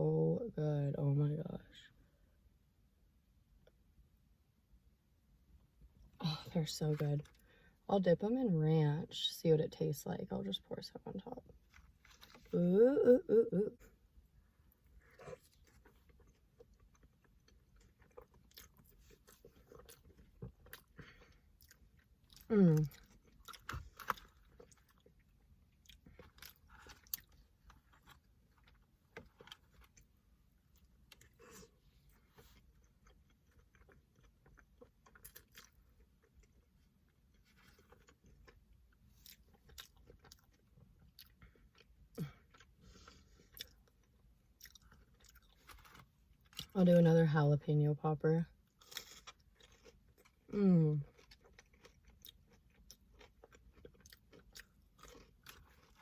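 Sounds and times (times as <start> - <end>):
person chewing crunchy food: 11.5 - 12.6, 13.9 - 46.7, 48.6 - 56.0.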